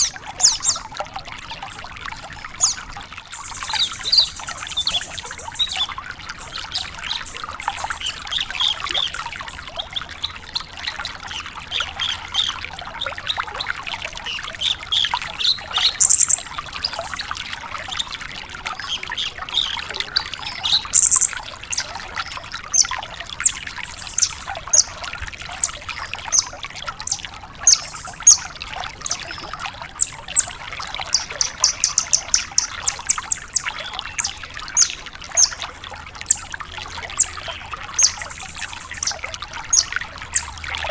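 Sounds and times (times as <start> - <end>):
lark chirping and trilling: 2.6 - 9.8, 15.9 - 17.3, 20.6 - 21.8, 22.8 - 25.0, 27.1 - 28.4, 31.1 - 35.6, 37.2 - 40.5.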